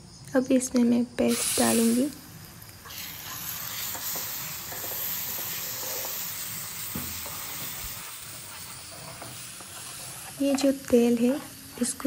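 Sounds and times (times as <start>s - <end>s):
paste sizzling in hot oil: 1.3s - 12.0s
spatula scraping a pan: 2.9s - 10.4s.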